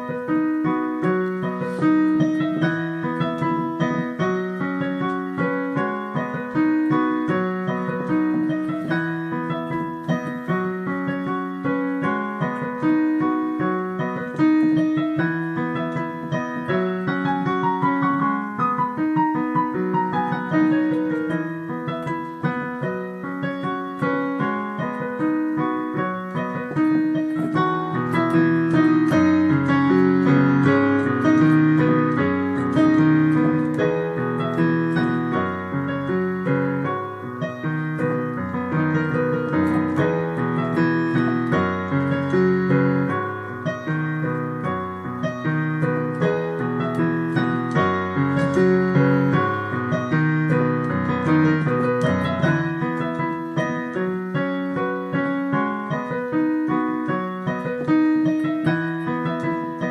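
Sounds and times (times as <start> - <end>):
solo piano melody: 0.0 - 59.9.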